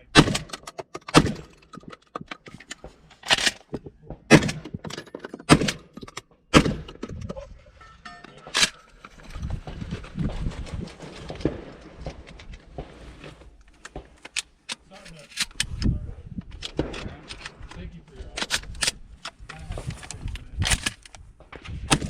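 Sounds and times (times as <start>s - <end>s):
gunshots: 0.0s - 1.6s, 3.4s - 5.9s, 6.5s - 7.0s, 16.7s - 17.6s, 21.4s - 22.0s.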